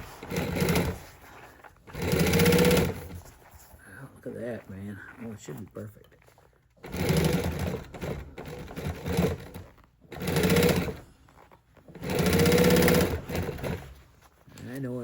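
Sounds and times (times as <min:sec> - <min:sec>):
sewing machine stitching: 0:00.0 - 0:03.3, 0:06.8 - 0:14.1.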